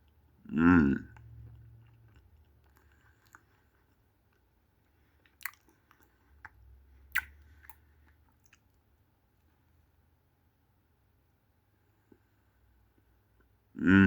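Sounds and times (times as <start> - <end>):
chewing ice cream sandwich: 1.0 - 9.6
wet mouth clicks and smacks: 1.1 - 4.4, 5.2 - 8.8.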